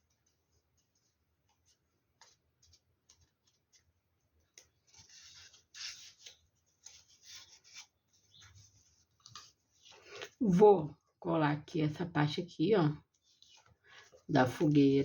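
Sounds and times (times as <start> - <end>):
soft scratchy rustling: 0.1 - 10.1.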